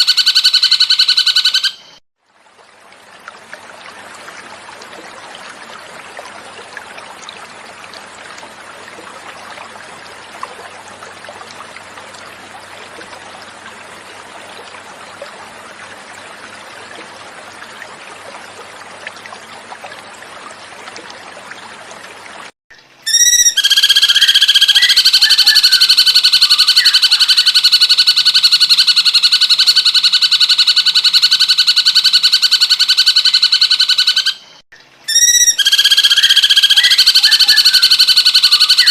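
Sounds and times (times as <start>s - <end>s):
flowing water: 0.0s - 38.9s
bird fast pulsing trill: 23.1s - 27.7s, 35.1s - 38.9s.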